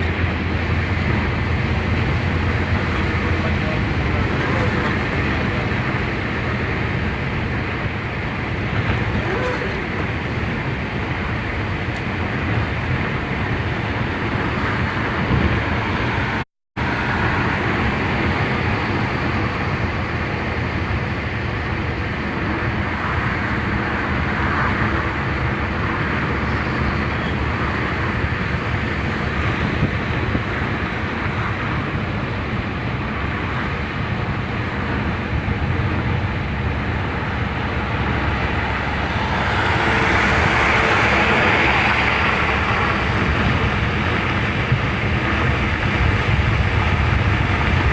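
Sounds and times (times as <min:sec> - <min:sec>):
car road noise: 0:00.0 - 0:47.9.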